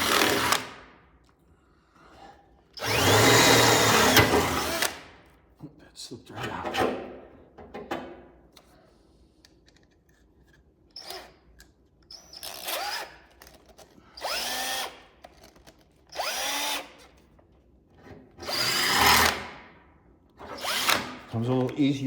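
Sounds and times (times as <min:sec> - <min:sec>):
power drill whining: 0:00.0 - 0:00.8, 0:02.8 - 0:05.1, 0:12.1 - 0:15.1, 0:15.7 - 0:17.2, 0:18.4 - 0:19.5, 0:20.4 - 0:21.3.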